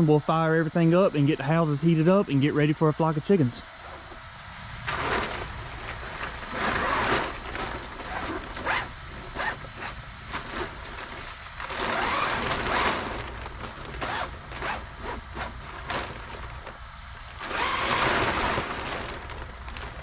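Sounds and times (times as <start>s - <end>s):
steady low hum: 0.0s - 20.0s
curtain being pulled down: 4.9s - 16.7s, 17.4s - 19.9s.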